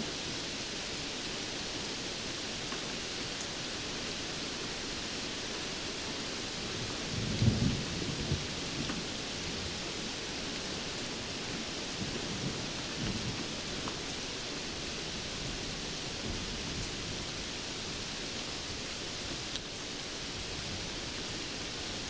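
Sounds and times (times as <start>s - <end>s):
rain hissing: 0.0s - 22.0s
thunder rumble: 6.6s - 17.4s.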